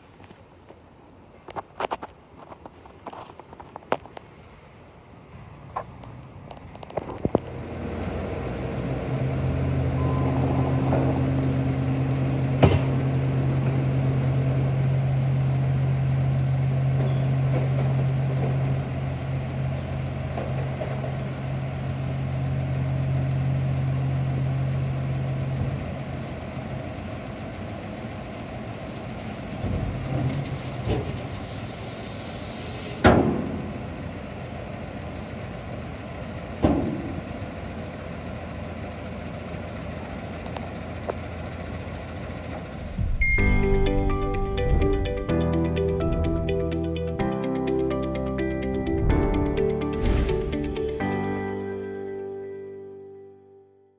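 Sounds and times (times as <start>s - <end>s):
truck engine idling: 7.4s - 32.6s, 33.4s - 51.2s
brief high hiss: 31.2s - 33.1s, 49.8s - 51.7s.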